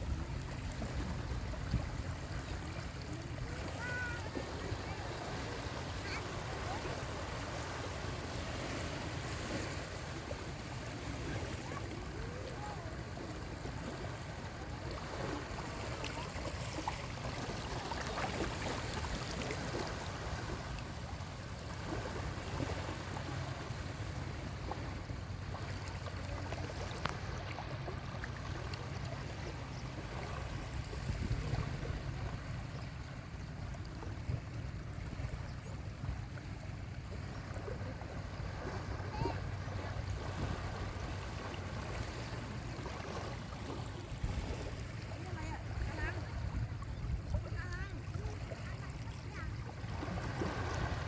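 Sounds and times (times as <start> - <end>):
faint distant voices: 0.0 - 20.8, 35.5 - 43.4
waves washing onto beach: 0.0 - 51.0.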